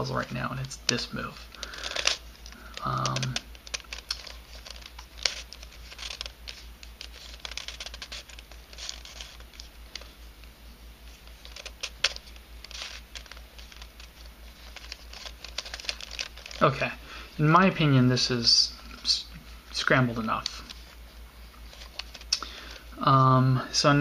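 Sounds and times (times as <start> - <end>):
low electrical hum: 0.0 - 24.0
puzzle pieces clicking and scraping: 0.6 - 10.1, 11.3 - 16.7.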